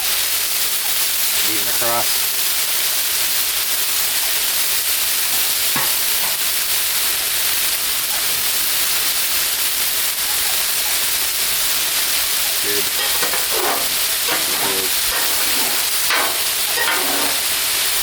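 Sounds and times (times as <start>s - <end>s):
vegetables sizzling in oil: 0.0s - 18.0s
spatula scraping griddle: 5.3s - 6.7s, 11.8s - 18.0s.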